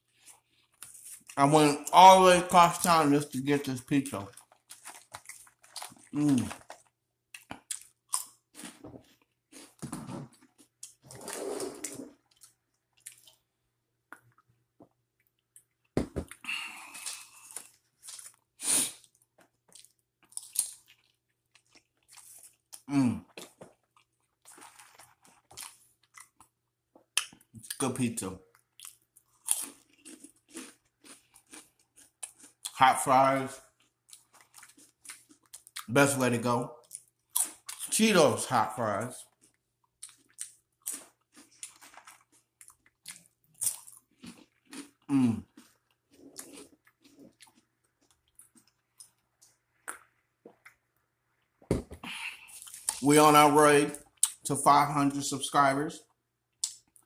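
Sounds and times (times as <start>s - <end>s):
chewing and biting pizza: 4.2s - 9.8s, 15.2s - 27.7s, 28.6s - 32.8s, 33.5s - 35.9s, 39.2s - 50.8s.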